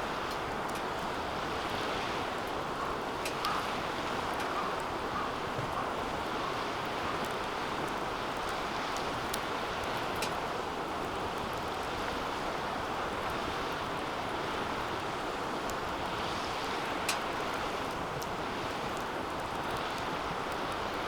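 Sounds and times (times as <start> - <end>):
fire popping: 0.0 - 21.0
wood fire rushing: 6.2 - 21.0.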